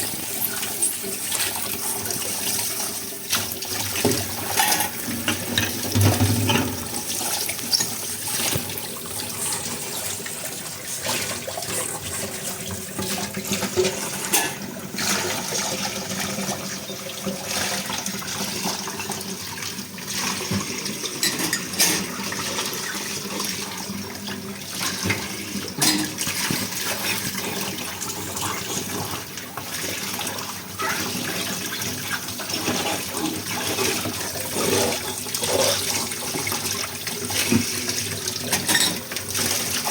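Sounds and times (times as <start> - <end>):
water running from a tap: 0.0 - 39.9
dishware clinking: 4.5 - 6.9, 13.8 - 14.6, 21.2 - 22.2, 25.8 - 26.2, 38.5 - 39.1.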